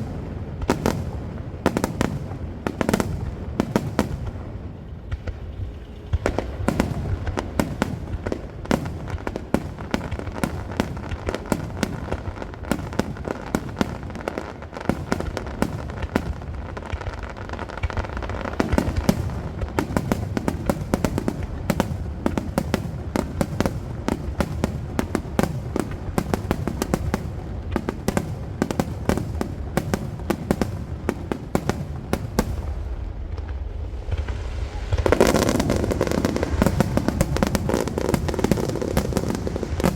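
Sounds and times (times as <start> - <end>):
fireworks bursting: 0.0 - 39.9
low rumble: 32.3 - 39.8.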